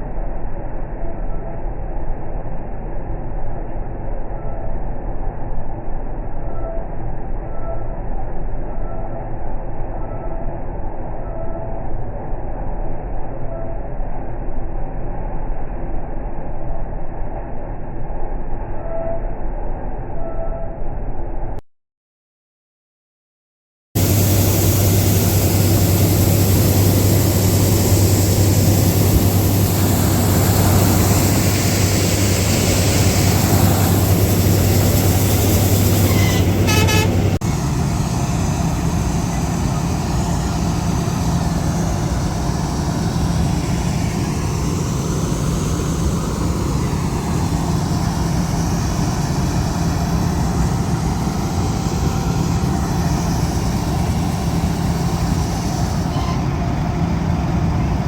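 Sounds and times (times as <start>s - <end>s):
combine harvester engine humming: 24.0s - 58.0s
brief horn toot: 36.0s - 37.4s, 56.0s - 56.6s.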